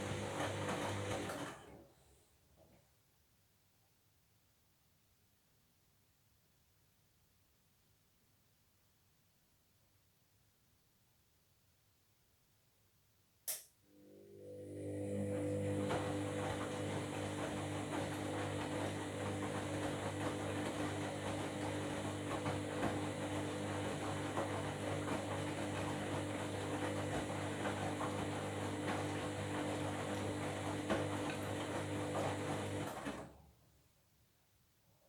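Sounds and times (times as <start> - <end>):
washing machine running: 0.0 - 1.9, 14.0 - 33.5.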